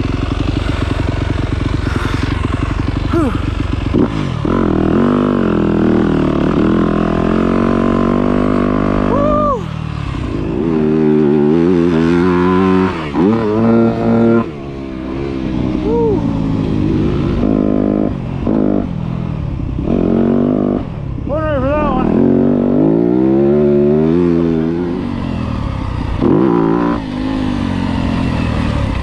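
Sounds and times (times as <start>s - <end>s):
dirt bike engine revving: 0.0s - 21.0s, 21.6s - 29.0s.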